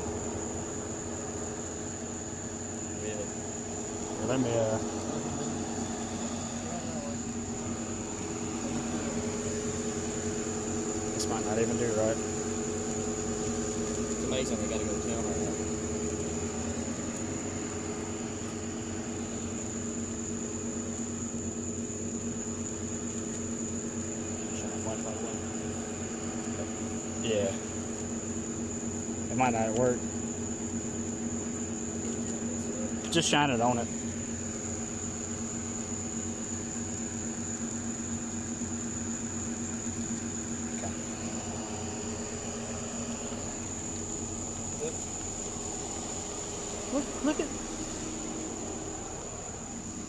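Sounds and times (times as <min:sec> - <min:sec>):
thin high whine: 0:00.0 - 0:16.9
high-pitched whine: 0:00.0 - 0:50.0
steady mechanical hum: 0:00.0 - 0:50.0.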